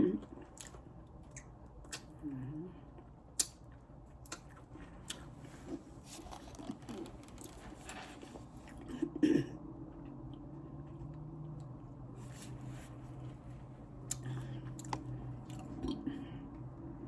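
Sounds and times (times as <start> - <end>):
person chewing chicken: 4.2 - 8.0, 14.1 - 16.0.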